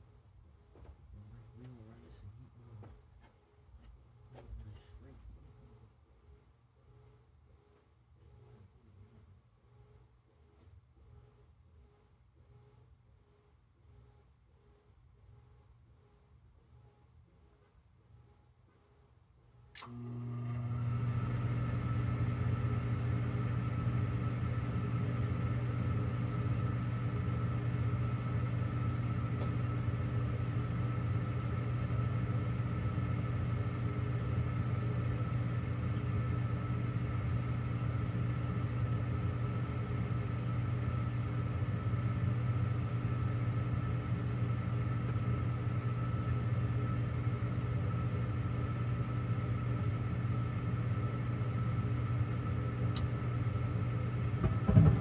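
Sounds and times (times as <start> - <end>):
furnace motor humming: 19.7 - 55.0.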